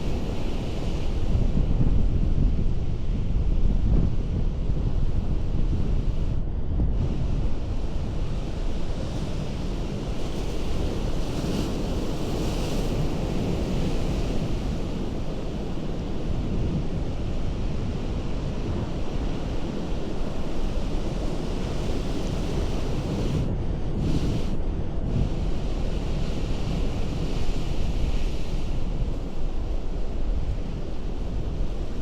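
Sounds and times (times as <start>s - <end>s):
wind buffeting microphone: 0.0s - 32.0s
ocean surf on rocks: 7.0s - 32.0s.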